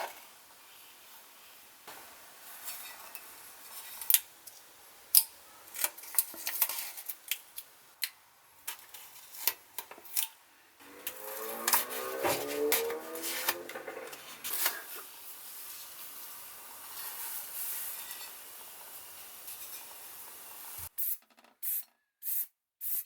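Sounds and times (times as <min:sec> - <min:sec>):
steady hum with pitched tones: 0:10.8 - 0:14.5.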